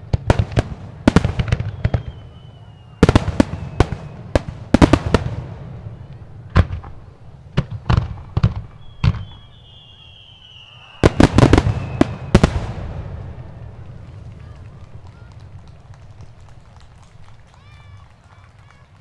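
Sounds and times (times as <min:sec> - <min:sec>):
fireworks bangs: 0:00.0 - 0:19.0
firework whistling tone: 0:01.2 - 0:04.9, 0:08.1 - 0:15.3.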